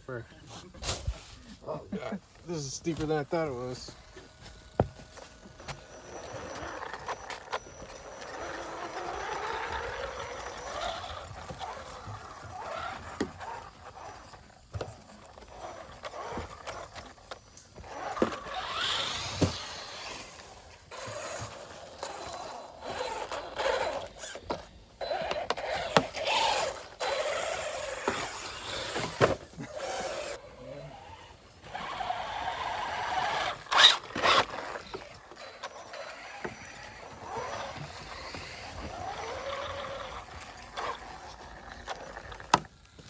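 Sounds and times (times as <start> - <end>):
tyres scrabbling on dirt: 0.1 - 43.0
rc buggy motor whine: 1.2 - 43.0.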